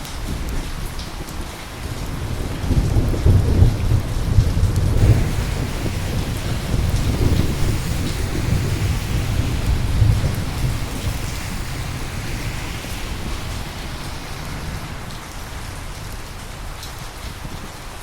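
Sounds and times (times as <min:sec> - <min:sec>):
steady rain: 0:00.0 - 0:18.0
thunder rolling: 0:04.9 - 0:17.7.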